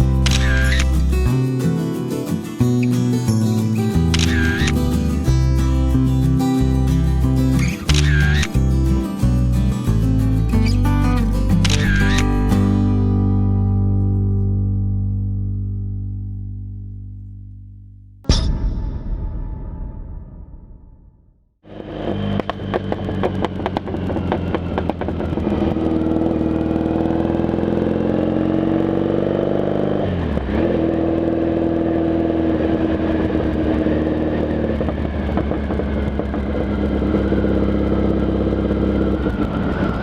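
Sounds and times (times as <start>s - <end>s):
motorcycle engine pulling away: 21.8s - 40.0s.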